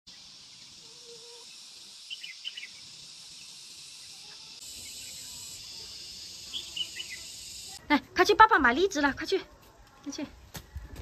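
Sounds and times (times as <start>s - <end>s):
bird chirps: 0.1s - 7.8s
high buzz of insects: 0.1s - 7.8s.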